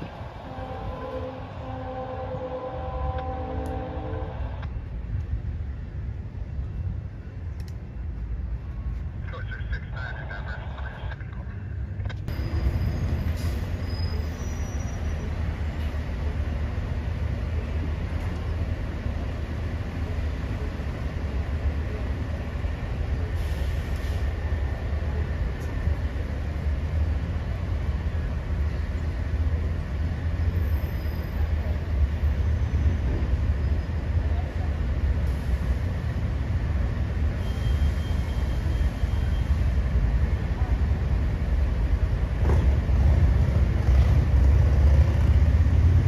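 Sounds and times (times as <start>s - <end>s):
train wheels rumbling on rails: 10.6s - 46.0s.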